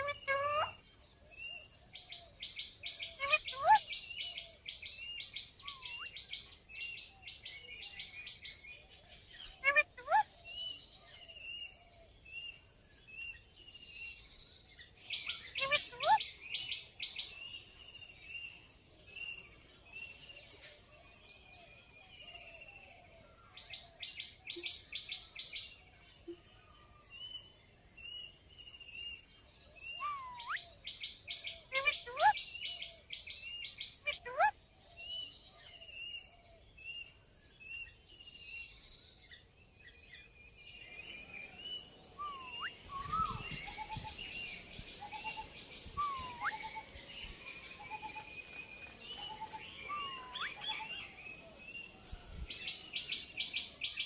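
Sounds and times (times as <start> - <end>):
parakeet whistled glides: 42.2 - 44.3, 45.0 - 46.9.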